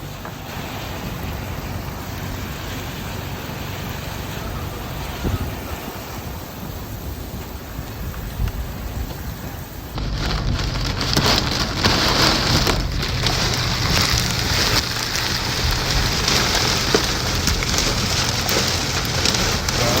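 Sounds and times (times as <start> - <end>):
heavy rain pouring: 0.0 - 20.0
low rumble: 9.8 - 20.0.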